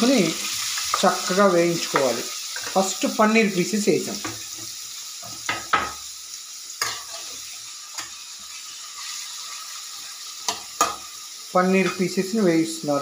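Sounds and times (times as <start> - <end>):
food sizzling in hot oil: 0.0 - 13.0
knocks against the pan: 5.5 - 6.0.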